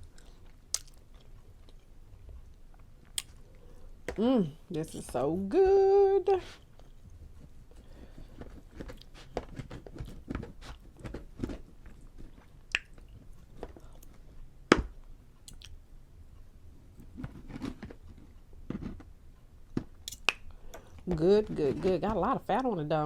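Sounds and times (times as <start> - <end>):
chewing with wet mouth clicks: 0.0 - 3.4, 12.4 - 14.1, 15.4 - 15.8.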